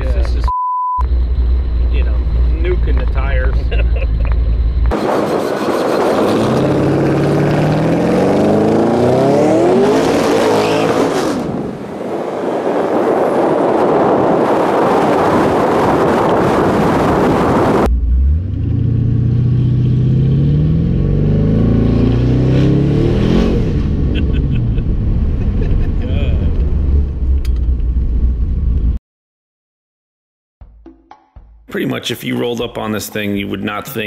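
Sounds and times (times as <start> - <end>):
car engine accelerating: 1.0 - 14.1, 16.2 - 29.0
loud rushing noise: 4.9 - 17.9.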